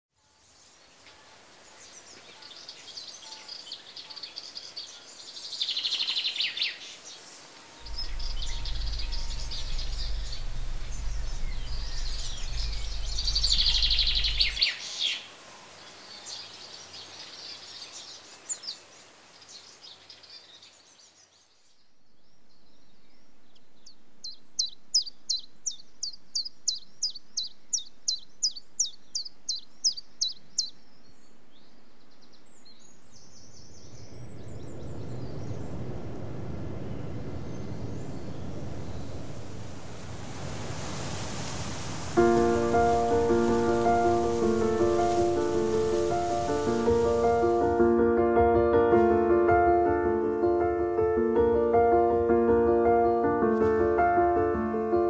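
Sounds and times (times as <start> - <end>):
faint steady hiss: 0.2 - 52.3
birds chirping and singing: 1.8 - 15.2, 42.2 - 47.8
low steady hum: 7.8 - 14.6.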